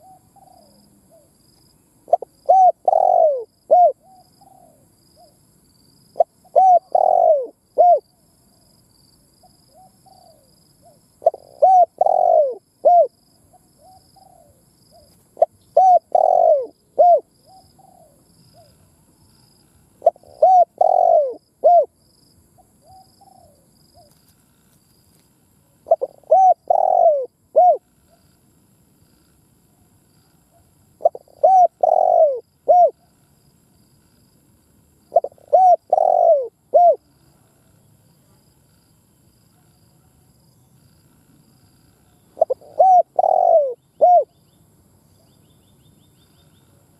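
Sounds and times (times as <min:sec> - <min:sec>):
dove cooing: 0:00.0 - 0:01.3, 0:02.1 - 0:05.4, 0:06.2 - 0:08.1, 0:09.4 - 0:18.9, 0:20.0 - 0:22.0, 0:22.6 - 0:24.2, 0:25.8 - 0:28.2, 0:30.5 - 0:33.1, 0:35.1 - 0:37.1, 0:42.3 - 0:44.4.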